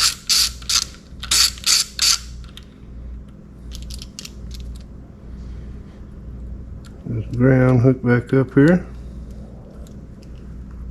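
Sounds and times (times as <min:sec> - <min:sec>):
ratchet wrench clicking: 0:00.0 - 0:02.3.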